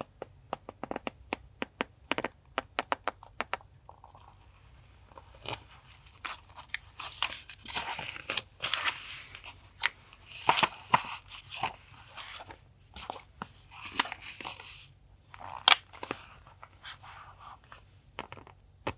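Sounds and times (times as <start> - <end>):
paper rustling and crinkling: 4.2 - 17.9.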